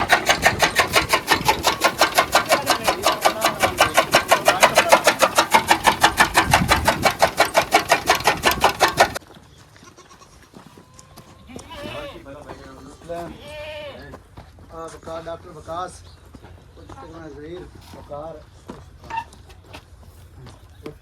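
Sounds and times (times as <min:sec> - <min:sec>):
chaff cutter clattering: 0:00.0 - 0:09.2.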